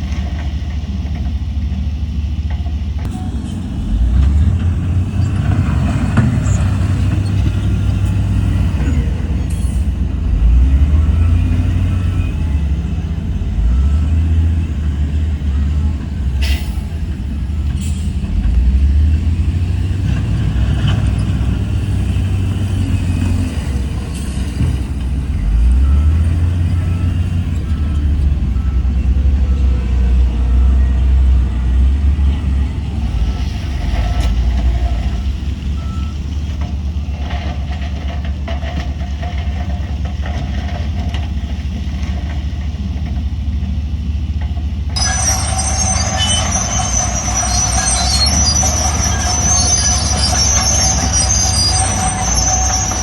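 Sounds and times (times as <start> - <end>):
heavy diesel machinery rumbling: 0.0 - 53.0
high metallic squealing: 45.0 - 53.0.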